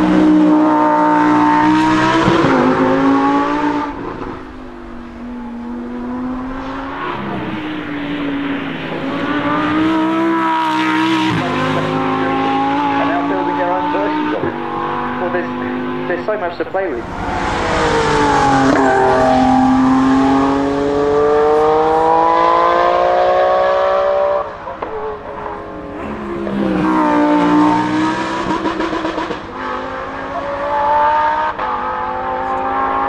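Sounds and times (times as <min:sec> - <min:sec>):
car engine accelerating hard: 0:00.0 - 0:33.0.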